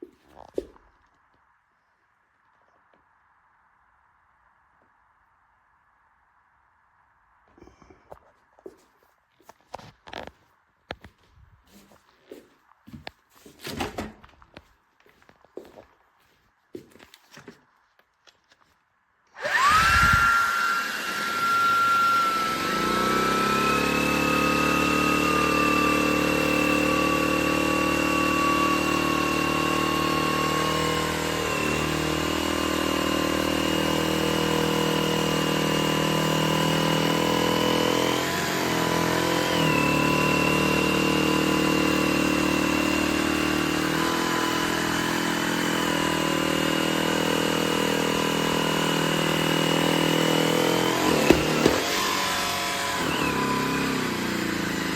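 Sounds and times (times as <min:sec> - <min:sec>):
vacuum motor whining: 0:19.4 - 0:54.9.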